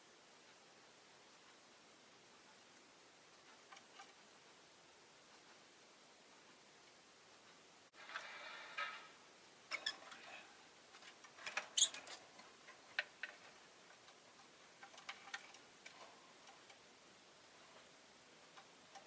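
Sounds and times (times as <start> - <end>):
lovebird chirping and clicking: 11.8 - 12.1.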